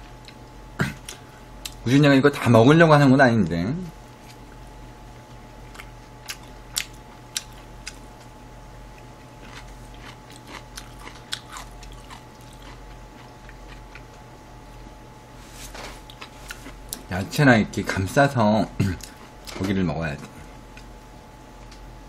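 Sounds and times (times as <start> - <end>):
chewing with crunches: 4.2 - 15.0, 15.9 - 17.1, 20.2 - 21.9.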